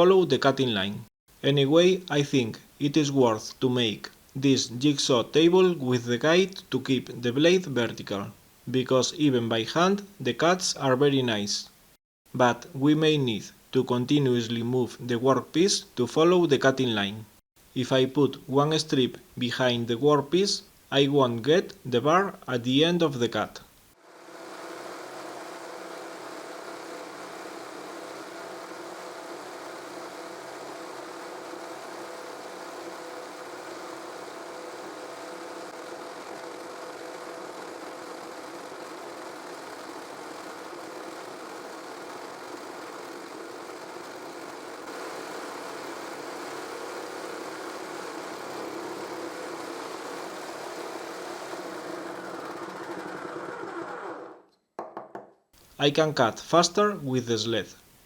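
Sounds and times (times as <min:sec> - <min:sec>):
jigsaw cutting wood: 0:24.2 - 0:54.4.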